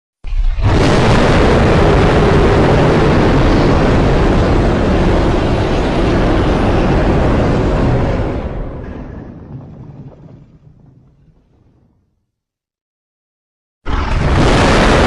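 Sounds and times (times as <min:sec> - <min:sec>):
monster roar: 0:13.9 - 0:15.0.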